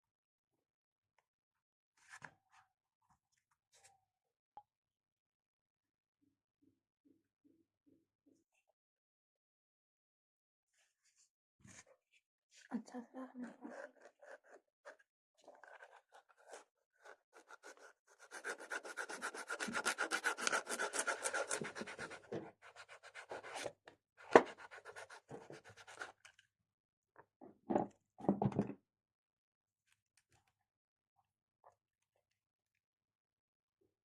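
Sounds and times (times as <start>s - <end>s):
hand scraping and rubbing: 15.6s - 23.7s.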